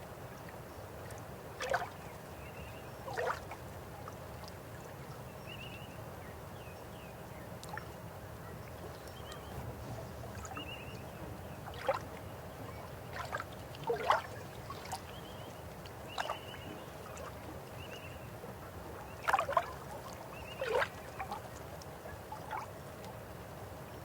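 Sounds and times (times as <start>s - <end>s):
river water running: 0.0s - 24.0s
water gurgles and plops: 11.4s - 17.5s, 19.1s - 21.6s.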